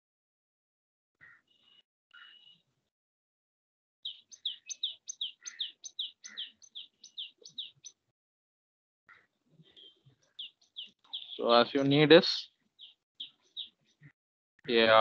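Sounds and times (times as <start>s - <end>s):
small bird chirping rapidly: 4.0s - 8.0s, 9.1s - 14.2s.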